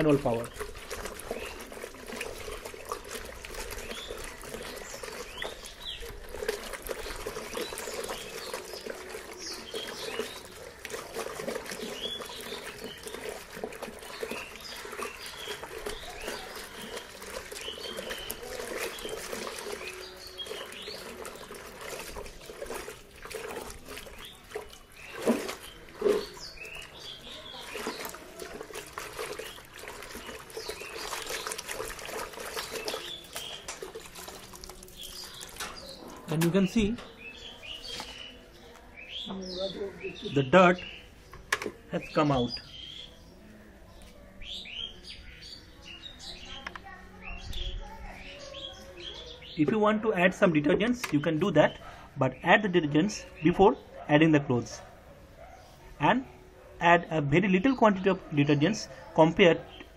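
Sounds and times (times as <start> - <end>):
water splashes: 0.0 - 43.2
water sloshing in a bucket: 0.0 - 59.9.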